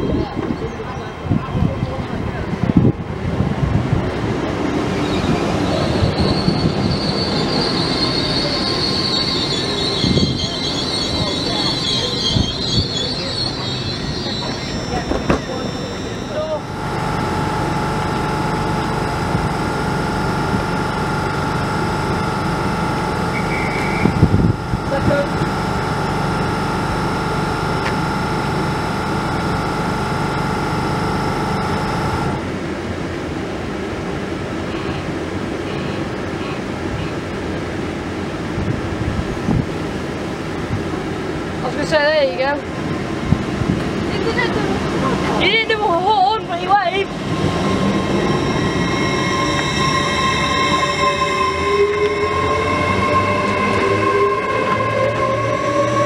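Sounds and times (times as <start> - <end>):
train low hum: 0.0 - 56.0
high whining tones: 4.8 - 32.5, 44.4 - 56.0.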